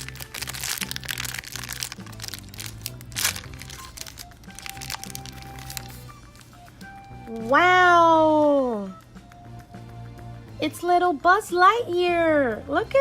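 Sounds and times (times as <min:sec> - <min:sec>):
plastic bag crinkling: 0:00.0 - 0:06.5
background music: 0:00.0 - 0:13.0.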